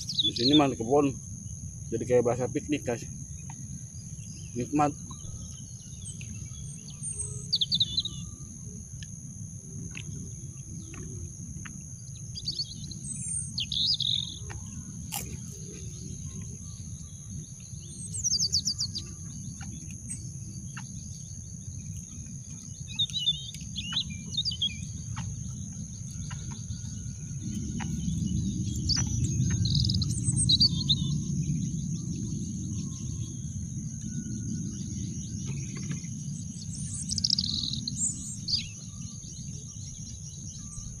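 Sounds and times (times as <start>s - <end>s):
birds chirping: 0.0s - 41.0s
high insect drone: 0.0s - 41.0s
low rumble: 24.0s - 36.6s.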